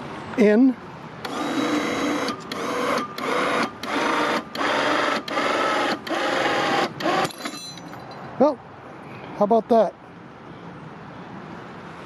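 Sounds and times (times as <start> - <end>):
electric winch motor whining: 1.2 - 7.4.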